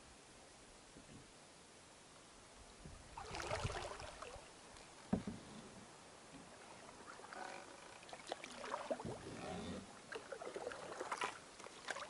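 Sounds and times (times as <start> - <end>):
canoe paddle splashing water: 3.1 - 4.5, 6.4 - 9.4, 10.0 - 12.0
water dribbling: 3.2 - 4.5, 6.5 - 12.0.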